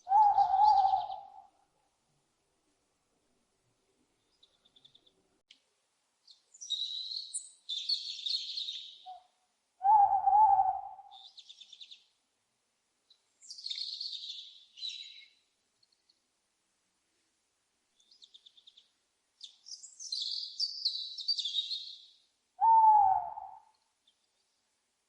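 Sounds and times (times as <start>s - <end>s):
owl call: 0.0s - 1.5s, 7.8s - 11.4s, 22.6s - 23.7s
small birds chirping and trilling: 4.2s - 5.2s, 6.2s - 9.2s, 11.1s - 12.2s, 13.1s - 16.2s, 18.0s - 22.3s.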